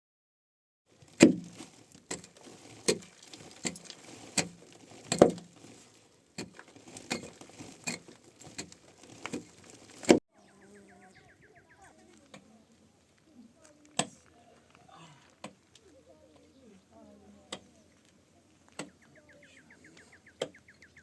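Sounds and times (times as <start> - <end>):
faint chirps: 15.9 - 21.0.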